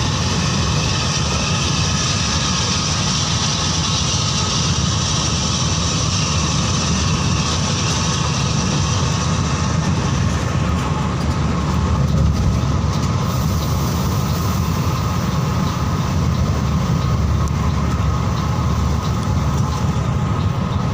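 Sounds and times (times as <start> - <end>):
coach engine and road noise: 0.0 - 20.9.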